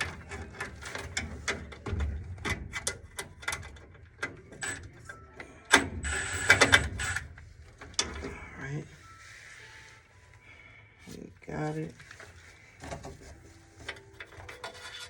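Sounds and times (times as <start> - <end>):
tool clicking and metallic rattling: 0.0 - 8.3.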